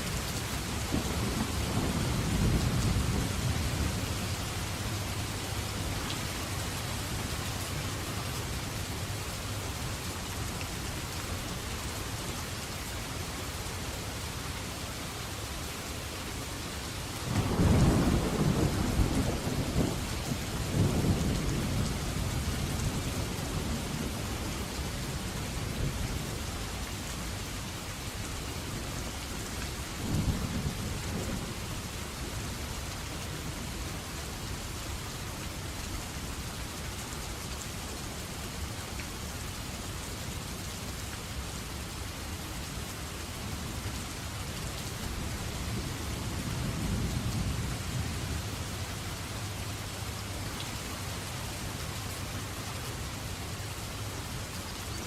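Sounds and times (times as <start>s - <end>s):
steady rainfall: 0.0s - 55.0s
rolling thunder: 17.3s - 24.2s.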